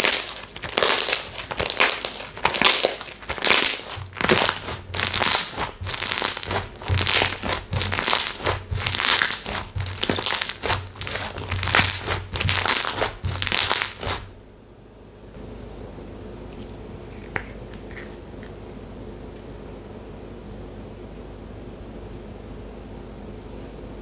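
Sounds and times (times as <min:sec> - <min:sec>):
slime squeezed by hand: 0:00.0 - 0:14.3.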